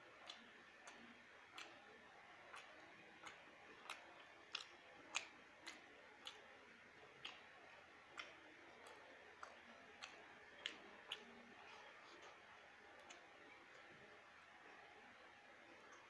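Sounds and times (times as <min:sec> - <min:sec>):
low hiss: 0:00.0 - 0:16.0
mouth chewing clicks: 0:00.1 - 0:14.9.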